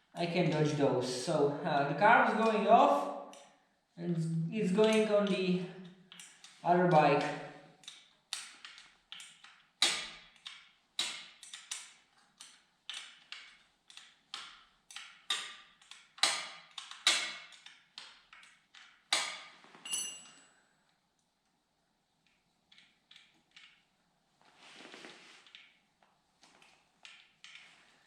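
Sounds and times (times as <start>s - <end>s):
hand tools clinking on metal: 19.9s - 20.5s
ringing metallic clink: 19.9s - 20.5s.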